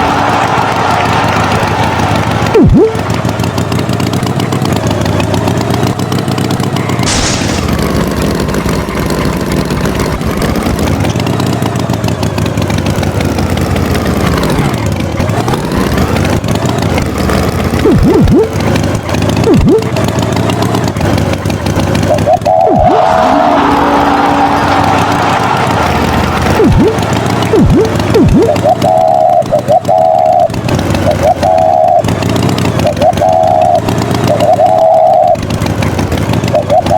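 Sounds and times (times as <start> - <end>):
engine running: 0.0 - 36.9.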